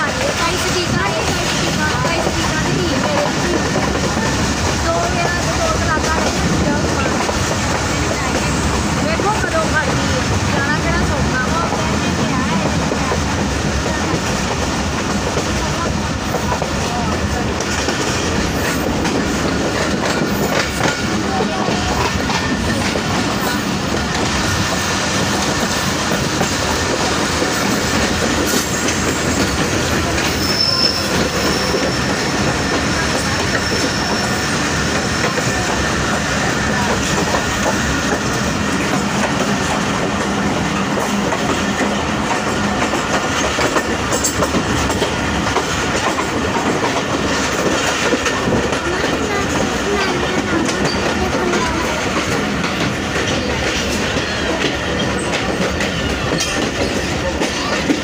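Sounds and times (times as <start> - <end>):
wheels rumbling on rails: 0.0 - 58.0
high-pitched wheel squeal: 30.3 - 32.2.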